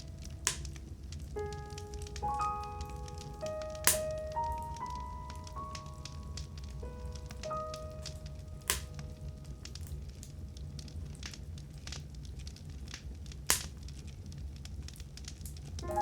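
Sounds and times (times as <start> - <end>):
logs popping: 0.0 - 6.0, 6.6 - 14.1
soft piano note: 0.0 - 11.2, 15.8 - 16.0
wood fire crackling: 0.0 - 16.0.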